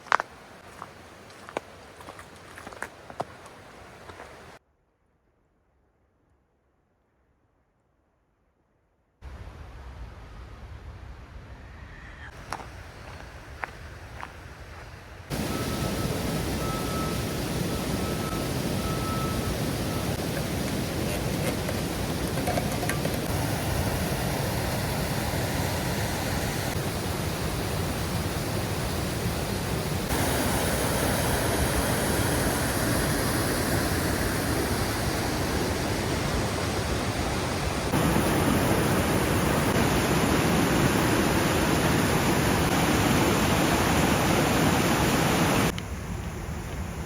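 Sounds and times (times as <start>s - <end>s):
waterfall rushing: 15.3s - 45.7s.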